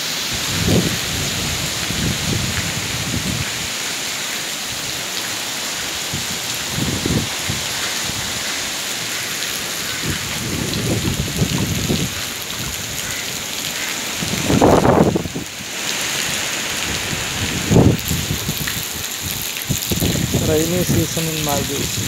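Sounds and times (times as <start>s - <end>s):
heavy rain falling: 0.0s - 22.0s
water pouring from drainpipe: 17.9s - 22.0s.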